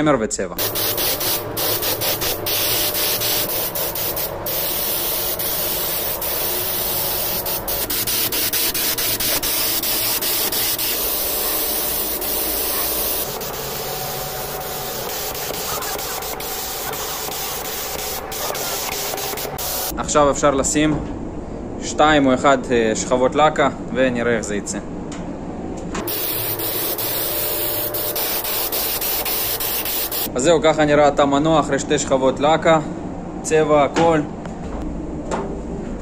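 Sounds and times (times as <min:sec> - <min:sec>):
spray-painting hiss: 0:00.6 - 0:19.9, 0:26.0 - 0:30.3
masking tape crackling: 0:14.4 - 0:19.9.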